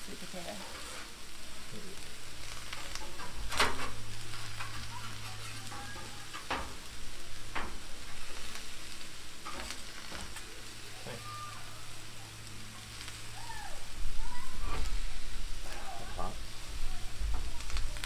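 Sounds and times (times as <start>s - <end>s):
vegetables sizzling on a griddle: 0.0s - 18.0s
metal spatula scraping griddle: 0.4s - 1.4s, 2.4s - 10.5s, 14.5s - 16.7s.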